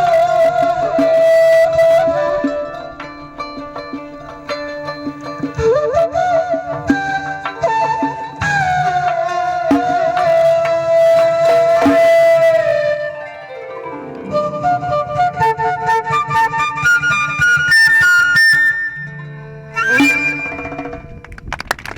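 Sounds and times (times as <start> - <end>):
flute melody: 0.0 - 21.2.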